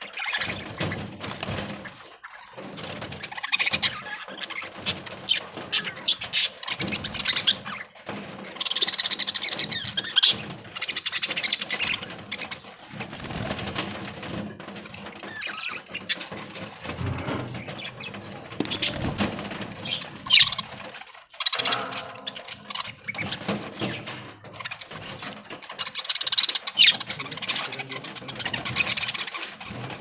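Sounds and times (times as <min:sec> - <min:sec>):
budgerigars chattering and chirping: 0:00.0 - 0:13.5, 0:17.3 - 0:20.8, 0:25.7 - 0:30.0.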